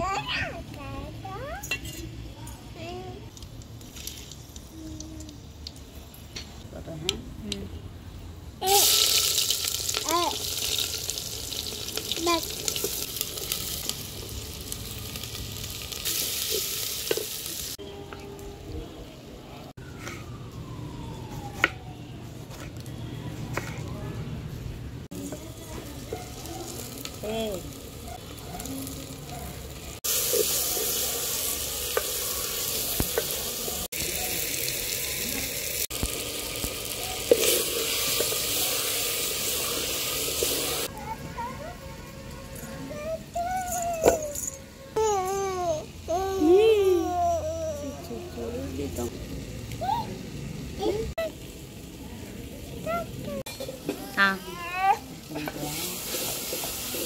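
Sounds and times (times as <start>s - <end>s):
onions sizzling in fat: 3.1s - 6.2s, 8.6s - 17.8s, 25.1s - 41.8s, 45.0s - 57.0s.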